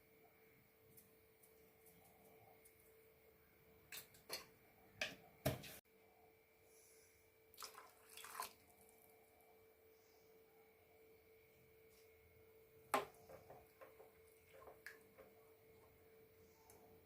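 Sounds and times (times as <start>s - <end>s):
faint steady hum: 0.0s - 17.0s
kitchen handling sounds: 3.9s - 5.8s.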